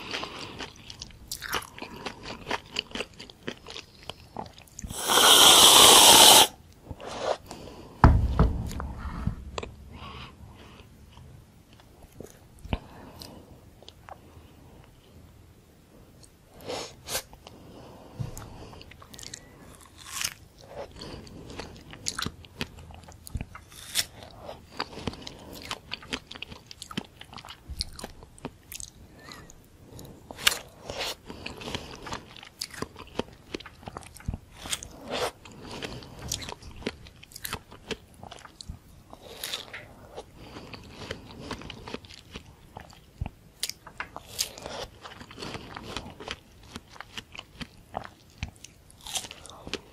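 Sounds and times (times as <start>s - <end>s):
biting and chewing fruit: 30.3s - 49.9s.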